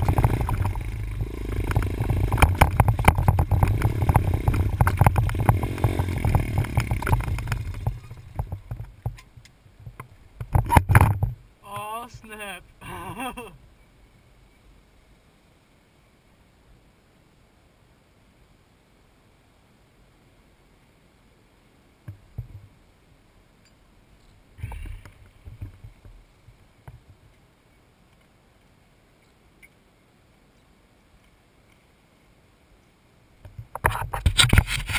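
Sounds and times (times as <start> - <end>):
dirt bike engine running: 0.0 - 9.2
bike rattles and knocks: 0.0 - 11.4, 24.6 - 27.3, 33.5 - 34.9.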